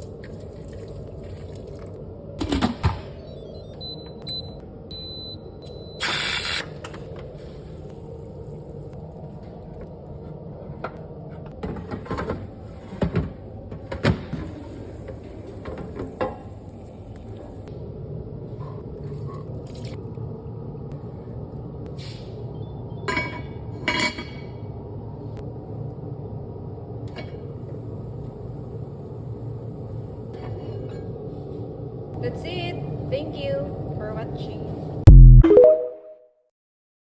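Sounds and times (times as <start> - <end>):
steady low hum: 14.8 - 23.0.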